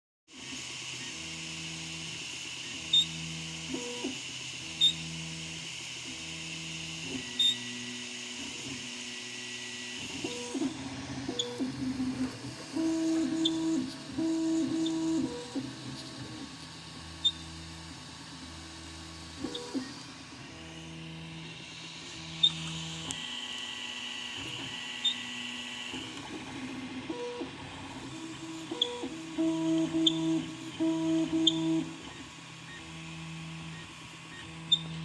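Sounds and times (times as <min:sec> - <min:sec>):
printer stepper motors singing: 0:00.3 - 0:35.0.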